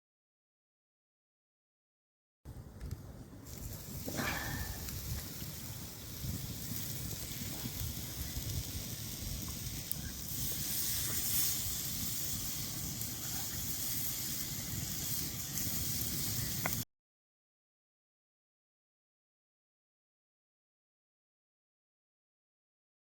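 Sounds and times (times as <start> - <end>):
faint crackles: 2.8 - 16.8
meat sizzling on a hot stone: 3.5 - 16.8.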